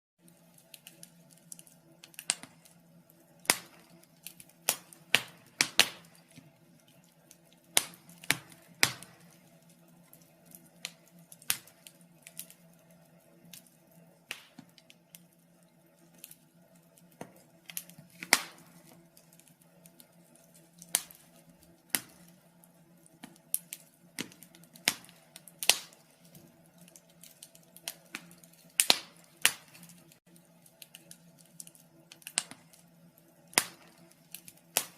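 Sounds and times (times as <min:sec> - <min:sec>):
faint steady hum: 0:00.2 - 0:34.9
wood fire crackling: 0:00.2 - 0:34.9
sharp pops of fire: 0:00.7 - 0:02.8, 0:03.4 - 0:06.4, 0:07.3 - 0:12.6, 0:14.3 - 0:15.2, 0:17.1 - 0:19.4, 0:20.8 - 0:22.4, 0:23.1 - 0:26.1, 0:26.9 - 0:30.2, 0:30.8 - 0:32.8, 0:33.5 - 0:34.9.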